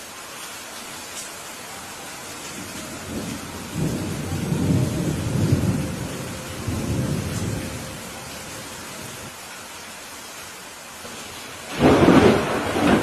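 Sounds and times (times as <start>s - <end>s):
steady rain: 0.0s - 13.0s
thunder rolling: 2.6s - 9.2s, 11.7s - 13.0s.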